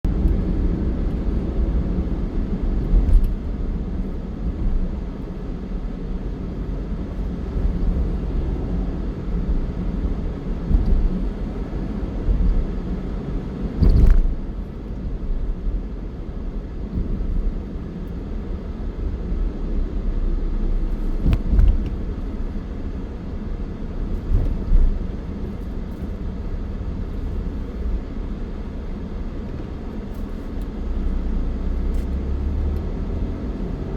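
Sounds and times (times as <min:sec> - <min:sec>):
vehicle and road rumble: 0:00.0 - 0:33.9
loud thumps: 0:10.6 - 0:11.6, 0:13.8 - 0:14.5, 0:21.1 - 0:22.1.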